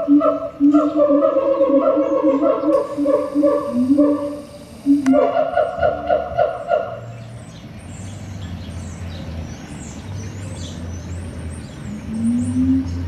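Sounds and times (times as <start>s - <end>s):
small birds chirping: 0.6s - 13.0s
low hum: 2.7s - 5.2s.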